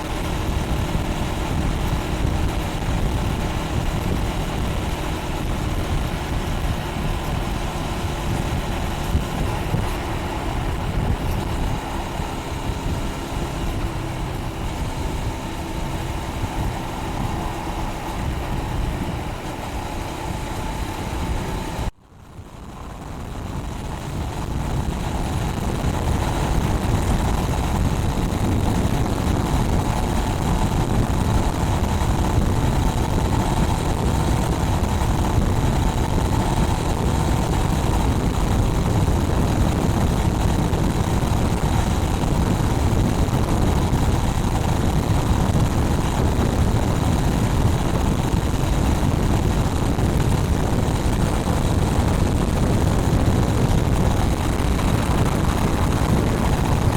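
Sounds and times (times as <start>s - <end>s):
motorcycle engine running: 0.0s - 56.9s
wind noise on microphone: 0.0s - 56.9s.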